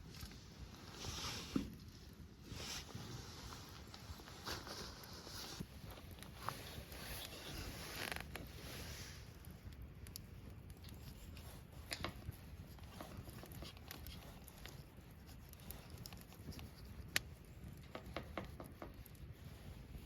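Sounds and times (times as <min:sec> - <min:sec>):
small objects clicking and tapping: 0:15.5 - 0:19.2.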